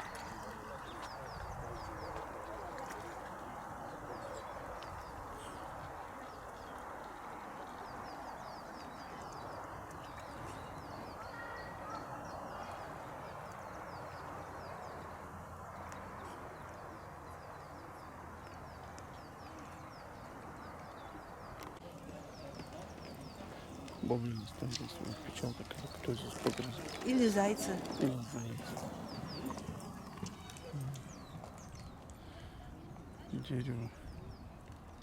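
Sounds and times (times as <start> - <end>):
small birds chirping: 0.0 - 35.0
outdoor rustle: 21.1 - 33.8.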